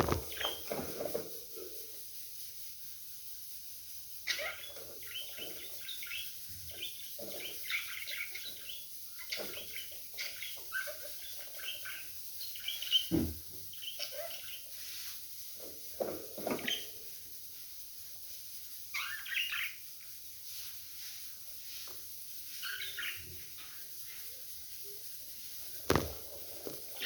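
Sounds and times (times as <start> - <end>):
budgerigars chattering and squawking: 4.3 - 14.7, 19.0 - 19.8, 22.6 - 23.3.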